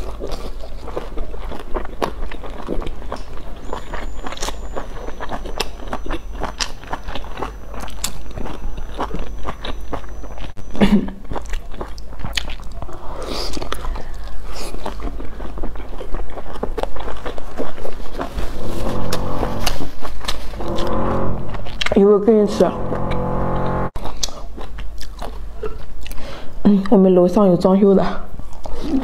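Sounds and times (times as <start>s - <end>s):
biting and chewing food: 0.0s - 18.6s, 24.0s - 26.2s.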